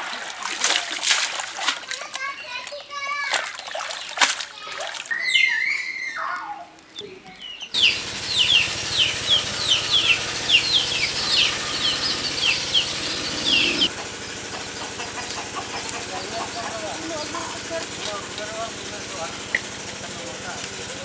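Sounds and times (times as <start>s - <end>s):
bird chirping: 6.9s - 13.9s.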